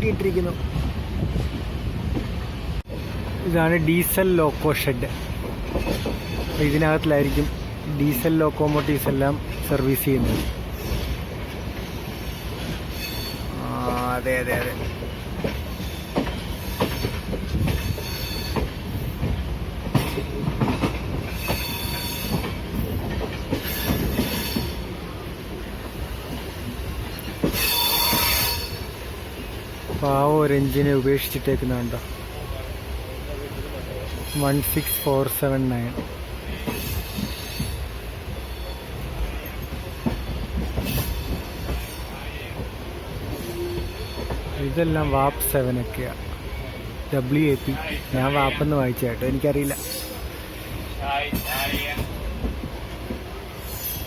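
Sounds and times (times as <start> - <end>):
train wheels rumbling on rails: 0.0 - 54.0
clanks from track joints: 5.1 - 7.6, 12.6 - 24.8
high wheel squeal: 12.3 - 13.6, 17.8 - 18.6, 21.3 - 22.4, 27.5 - 28.9, 36.5 - 39.5, 49.6 - 50.4
high wheel screech: 27.5 - 28.9.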